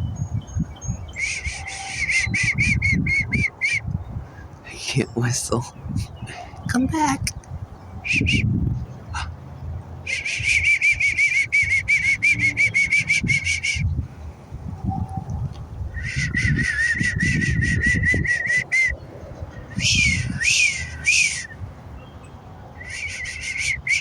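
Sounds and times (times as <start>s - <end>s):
rising and falling whistles: 1.0s - 4.0s, 8.0s - 8.6s, 10.1s - 13.9s, 15.9s - 19.0s, 19.7s - 21.6s, 22.8s - 24.0s
rapid repeated whistling: 1.1s - 3.9s, 8.0s - 8.6s, 10.1s - 13.9s, 16.0s - 19.0s, 19.7s - 21.6s, 22.8s - 24.0s.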